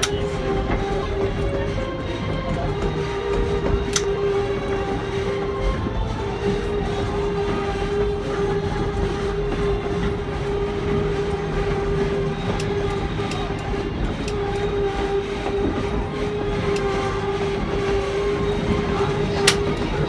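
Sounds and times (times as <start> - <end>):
constant droning tone: 0.0 - 20.0
train coaches rumbling on track: 0.0 - 20.0
wheels clicking over rail joints: 0.0 - 20.0.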